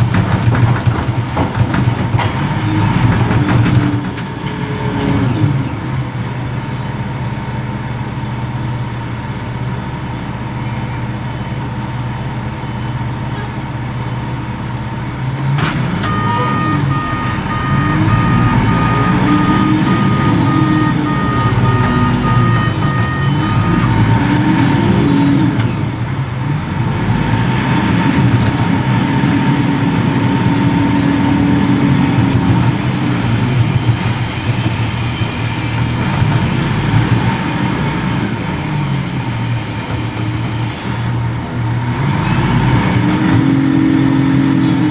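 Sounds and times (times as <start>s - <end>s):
diesel engine revving: 0.0s - 44.9s
rapid electronic warning beeper: 16.1s - 24.1s.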